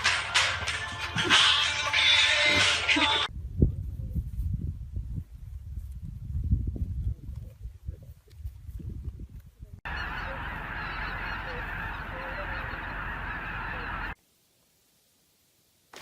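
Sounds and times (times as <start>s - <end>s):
geese honking: 9.9s - 14.2s.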